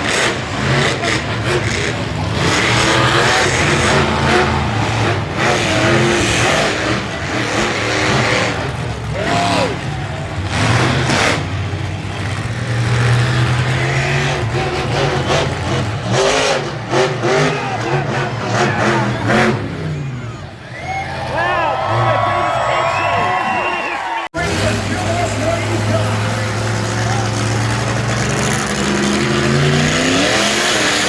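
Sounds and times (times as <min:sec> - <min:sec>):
truck engines revving: 0:00.0 - 0:31.0.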